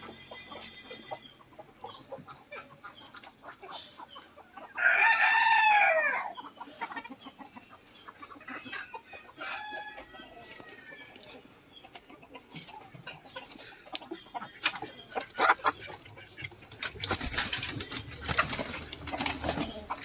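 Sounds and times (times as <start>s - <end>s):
hens clucking: 0.0s - 20.0s
rooster crowing: 4.8s - 6.3s, 9.4s - 10.9s
hens pecking clicks: 11.9s - 20.0s.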